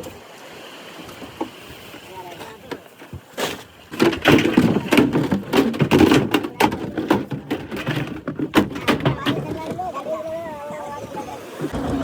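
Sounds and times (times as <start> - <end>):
rapid knocking and clattering: 3.9 - 9.8.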